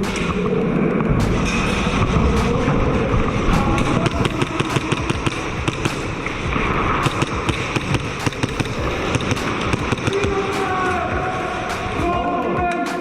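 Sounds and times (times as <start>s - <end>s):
low rumble: 0.0s - 12.5s
airsoft guns firing: 3.6s - 11.1s.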